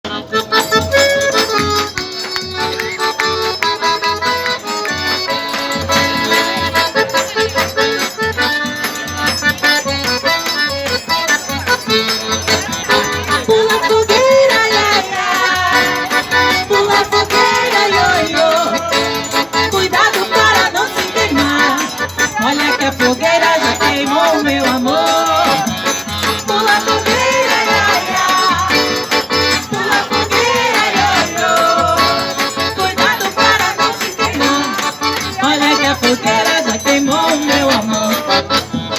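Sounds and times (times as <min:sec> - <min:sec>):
accordion melody: 0:00.0 - 0:38.9.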